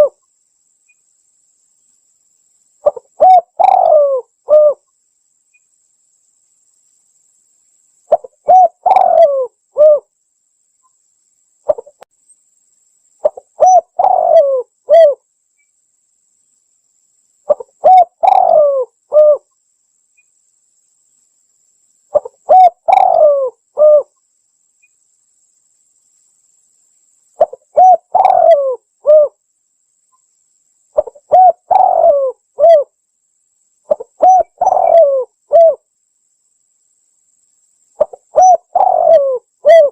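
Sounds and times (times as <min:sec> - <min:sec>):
dove cooing: 0:00.0 - 0:00.2, 0:02.8 - 0:04.8, 0:08.1 - 0:10.1, 0:13.2 - 0:15.2, 0:17.5 - 0:19.5, 0:22.1 - 0:24.1, 0:27.4 - 0:29.4, 0:31.0 - 0:32.9, 0:33.9 - 0:35.8, 0:38.0 - 0:39.9.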